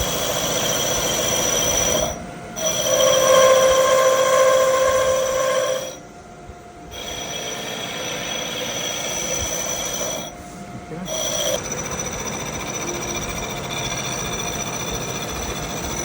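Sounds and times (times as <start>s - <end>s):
machine tool cutting metal: 0.0s - 6.0s, 6.9s - 10.4s, 11.0s - 16.0s.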